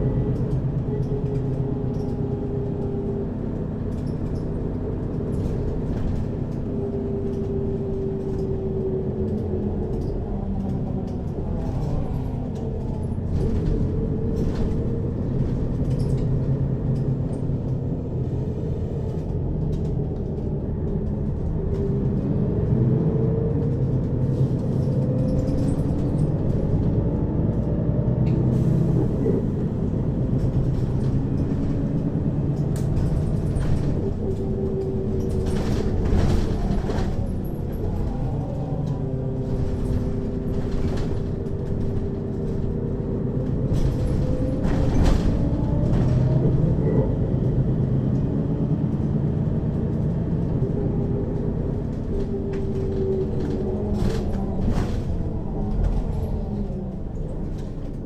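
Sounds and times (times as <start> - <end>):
bus engine and gearbox hum: 0.0 - 58.0.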